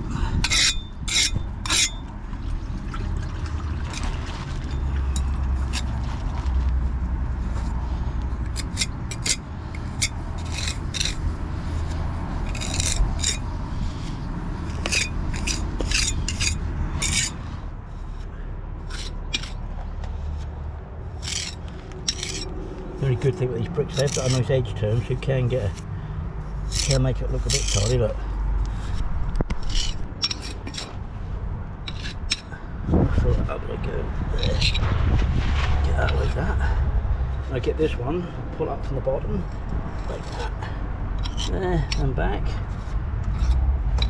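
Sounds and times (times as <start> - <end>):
steady low rumble: 0.0 - 44.0
trowel scraping wet mortar: 0.5 - 2.0, 3.9 - 6.2, 8.5 - 18.3, 18.9 - 19.6, 21.2 - 22.5, 23.1 - 24.9, 26.7 - 31.0, 31.9 - 32.6, 34.4 - 34.9, 39.4 - 44.0.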